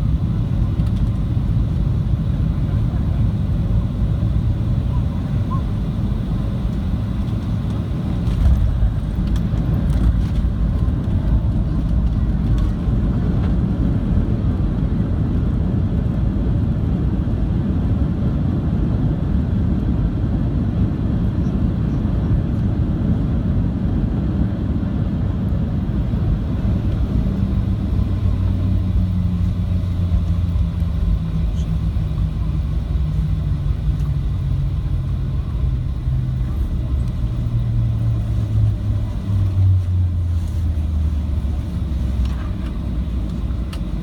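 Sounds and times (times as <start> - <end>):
airplane cabin rumble: 0.0 - 44.0.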